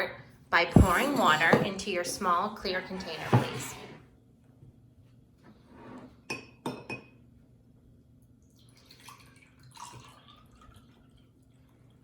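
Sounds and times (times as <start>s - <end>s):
water pouring into a glass: 8.5s - 11.7s.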